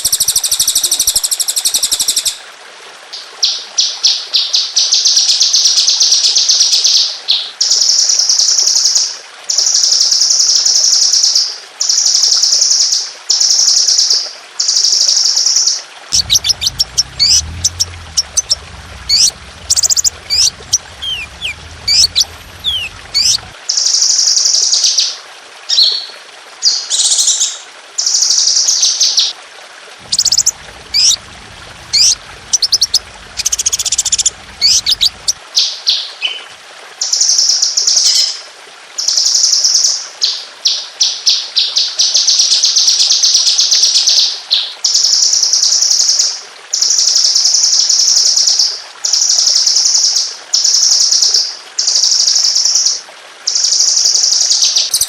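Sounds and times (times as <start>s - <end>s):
songbird chirps and trills: 16.2s - 23.5s, 30.0s - 35.4s.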